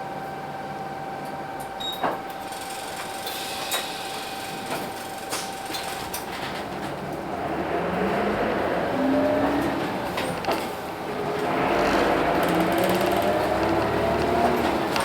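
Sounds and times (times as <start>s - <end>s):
bus whine: 0.0s - 15.0s
diesel engine rising in pitch: 7.3s - 10.2s, 10.9s - 15.0s
clicks and rattles in cabin: 12.3s - 15.0s.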